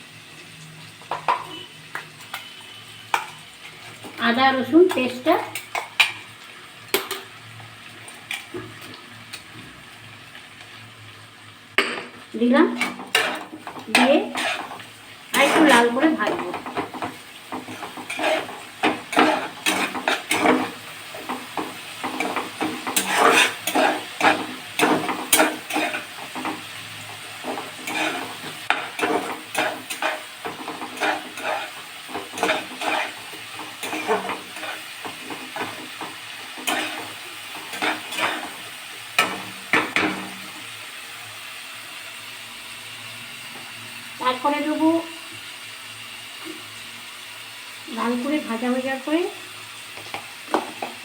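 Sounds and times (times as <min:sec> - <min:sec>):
onions sizzling in a pan: 0:00.0 - 0:51.0
spatula scraping a pan: 0:12.7 - 0:40.6.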